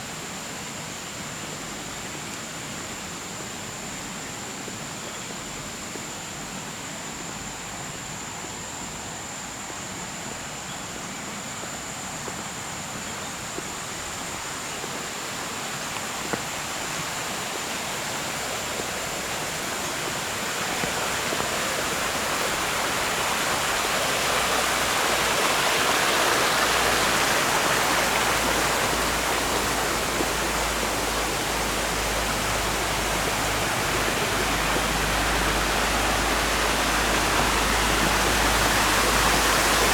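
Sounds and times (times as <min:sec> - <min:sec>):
water rushing over rocks: 0:13.4 - 0:39.9.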